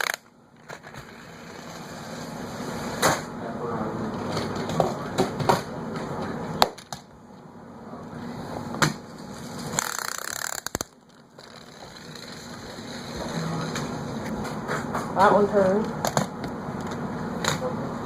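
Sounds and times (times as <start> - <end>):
toy car spring motor whirring: 0.0 - 0.2, 9.7 - 13.2
toy cars clacking into things: 0.0 - 0.9, 9.7 - 12.0.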